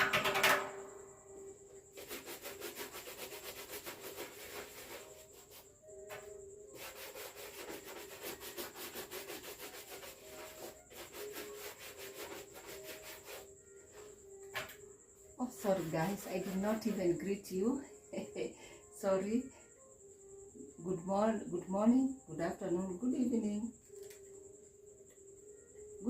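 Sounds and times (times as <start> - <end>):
shoes being polished: 1.9 - 14.1, 15.6 - 17.0.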